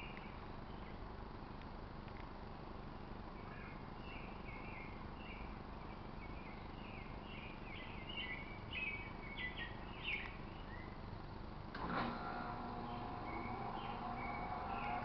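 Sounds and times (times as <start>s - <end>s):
small bird chirping: 0.0s - 1.2s, 3.0s - 11.3s, 12.8s - 15.0s
outdoor background hiss: 0.0s - 15.0s.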